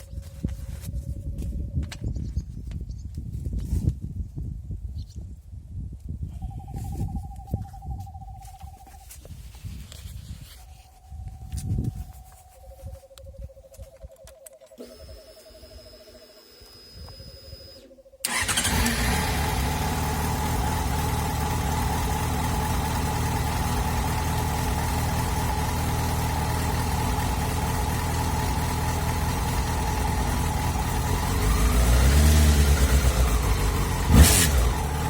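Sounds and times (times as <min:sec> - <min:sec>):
motorcycle engine starting and idling: 0:14.6 - 0:35.0.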